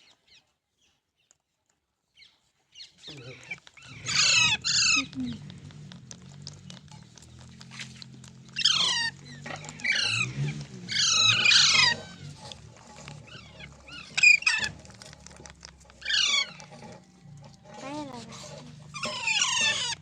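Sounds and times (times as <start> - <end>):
parakeet screeching: 3.2 - 5.5, 8.6 - 14.9, 15.9 - 16.8, 18.9 - 20.0.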